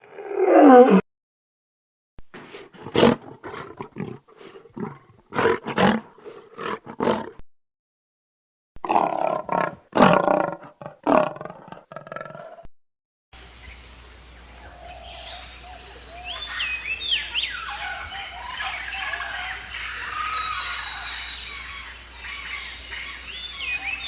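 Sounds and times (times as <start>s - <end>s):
big cat roaring and grunting: 0.0s - 1.0s, 2.8s - 7.4s, 8.8s - 12.7s.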